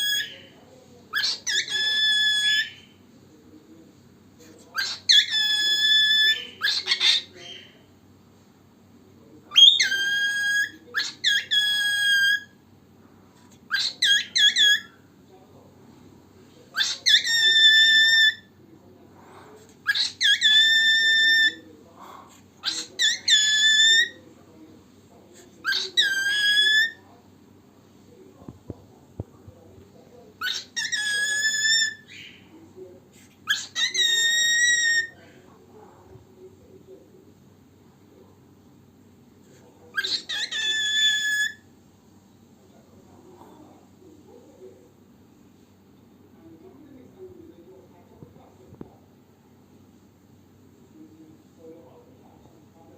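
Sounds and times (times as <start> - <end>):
cockatiel whistling: 1.2 - 2.9, 4.8 - 7.6, 9.5 - 12.6, 16.8 - 18.5, 19.9 - 21.6, 22.6 - 24.2, 25.7 - 27.0, 30.4 - 32.3, 33.5 - 35.2, 40.0 - 41.6.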